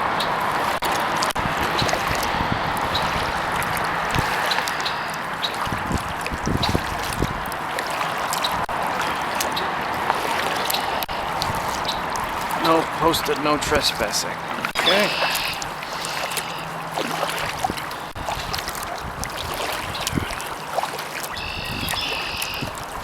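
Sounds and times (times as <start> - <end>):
water dripping off paddle: 0.1 - 23.0.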